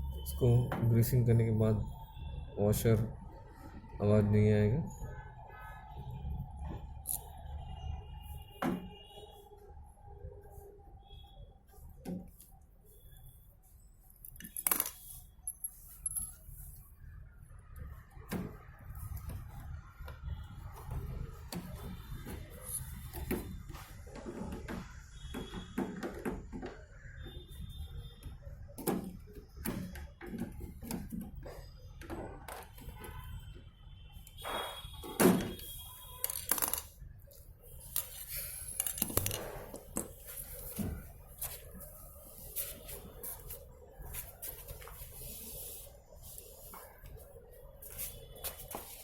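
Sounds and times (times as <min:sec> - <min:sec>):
clinks and clicks of tools: 0:38.0 - 0:40.1.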